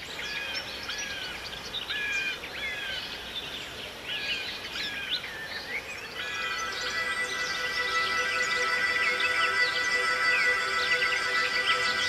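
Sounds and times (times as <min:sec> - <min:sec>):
birds chirping and singing: 0:04.2 - 0:12.0.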